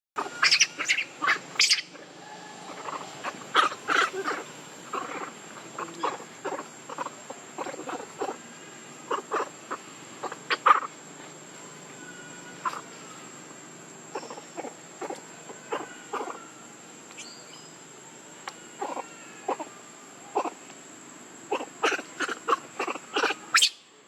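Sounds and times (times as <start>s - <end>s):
young monkeys squeaky calls: 0.2s - 10.9s, 12.1s - 13.3s, 14.1s - 16.6s, 18.6s - 19.7s, 21.5s - 23.9s.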